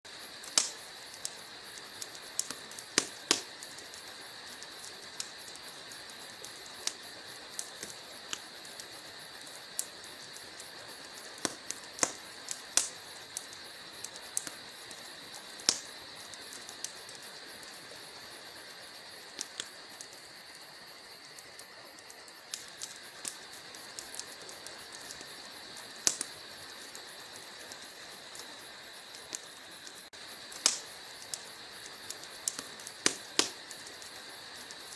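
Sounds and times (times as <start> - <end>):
fire hissing: 0.1 - 34.9
logs crackling and popping: 0.3 - 34.9.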